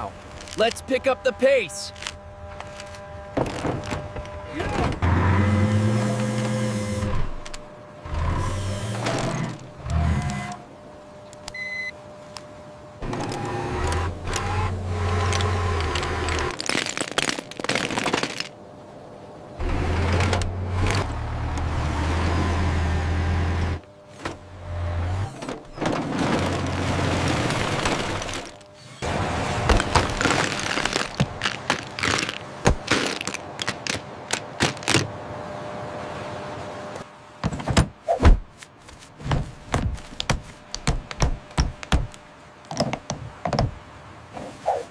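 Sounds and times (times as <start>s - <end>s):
steady hum: 0.0s - 16.6s
sharp cracks and knocks: 15.2s - 18.6s, 29.6s - 35.1s, 37.4s - 43.8s.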